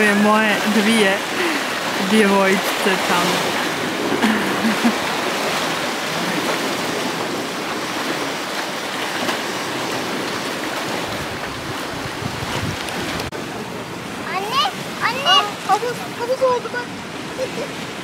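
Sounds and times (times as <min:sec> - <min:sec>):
sea surf washing onto shore: 0:00.0 - 0:18.0
wind buffeting microphone: 0:00.0 - 0:18.0.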